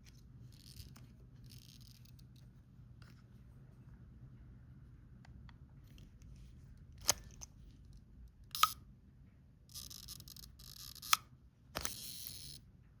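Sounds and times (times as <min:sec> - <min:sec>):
camera shutter clicks: 0:08.5 - 0:08.8, 0:11.8 - 0:12.6.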